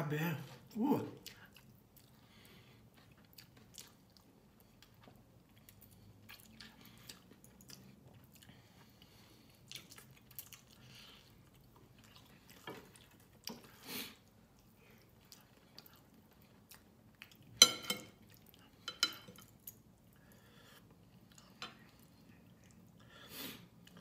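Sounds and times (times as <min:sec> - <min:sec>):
chewing and wet mouth smacks: 0:02.9 - 0:08.9, 0:09.5 - 0:17.5.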